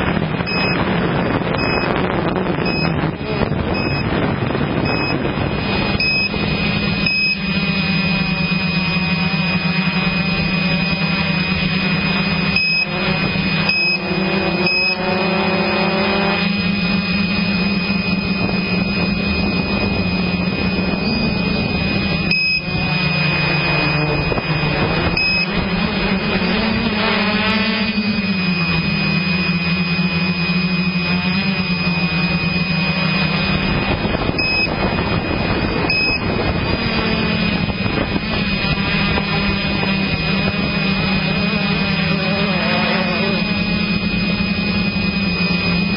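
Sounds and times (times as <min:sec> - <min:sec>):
motorbike engine running: 0:00.0 - 0:45.9.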